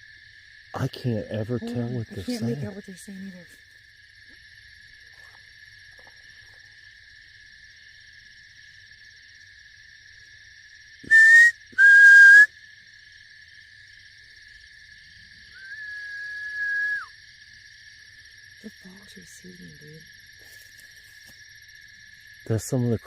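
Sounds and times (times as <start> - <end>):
loud short whistle blasts: 11.0 - 12.5, 15.6 - 17.1.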